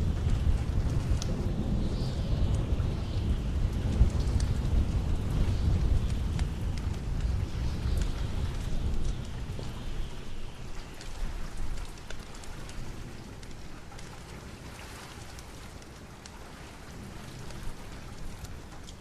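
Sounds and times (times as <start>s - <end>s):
steady rain: 0.0s - 19.0s
thunder rumbling: 0.0s - 19.0s
sharp crackles: 3.2s - 19.0s.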